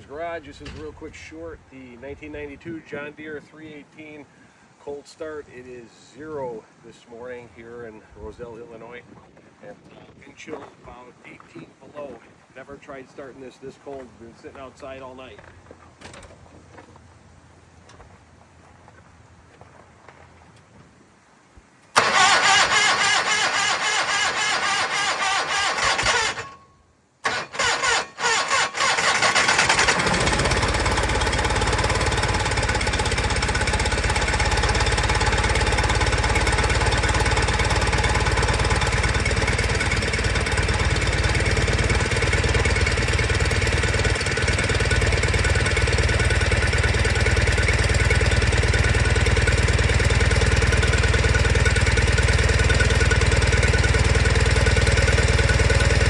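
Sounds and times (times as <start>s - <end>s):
tractor engine cold-starting: 0.0s - 3.0s, 21.9s - 56.0s.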